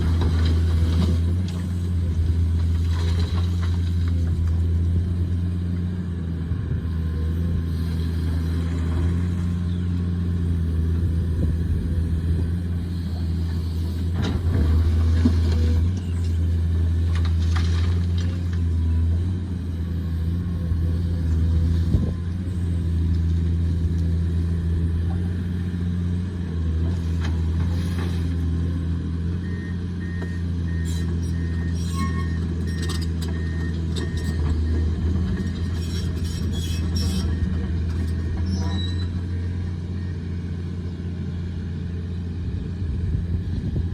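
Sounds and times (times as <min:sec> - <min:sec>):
excavator diesel engine: 0:00.0 - 0:43.9.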